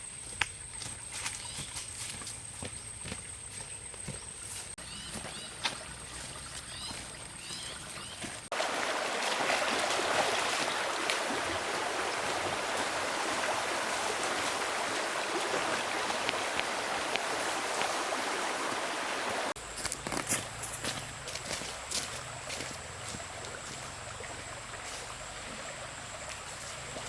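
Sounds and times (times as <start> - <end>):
rush of flowing water: 5.5 - 27.0.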